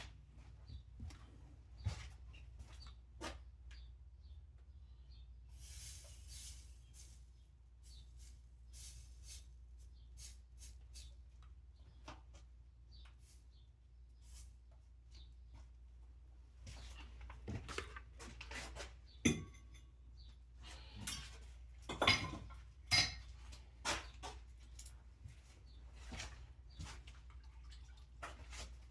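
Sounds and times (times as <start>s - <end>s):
metal tools clinking and knocking: 19.3s - 20.0s, 21.0s - 23.5s.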